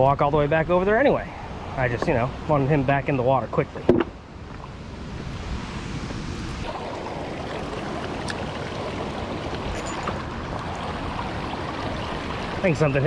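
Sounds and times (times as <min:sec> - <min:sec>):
water rushing over spillway: 0:06.4 - 0:13.0.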